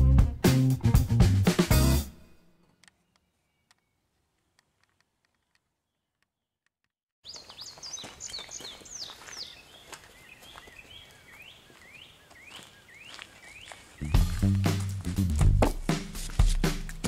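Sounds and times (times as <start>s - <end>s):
birds chirping and whistling: 7.2s - 14.9s.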